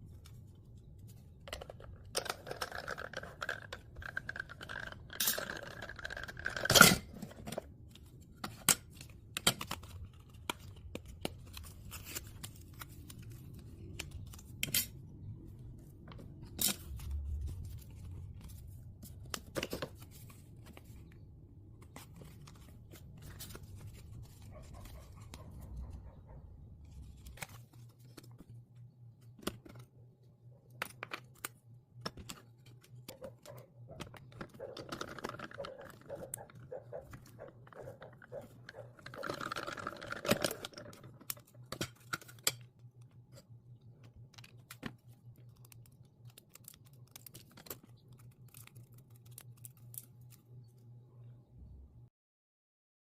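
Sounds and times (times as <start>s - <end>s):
paper rustling and crinkling: 7.4s - 14.6s, 15.6s - 26.0s, 26.8s - 30.0s, 43.2s - 50.5s.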